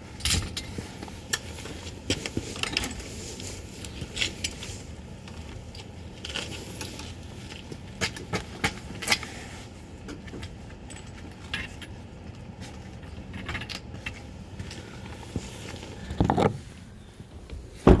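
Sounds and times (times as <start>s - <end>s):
low vehicle hum: 12.1s - 18.0s
rustling knock: 17.8s - 18.0s.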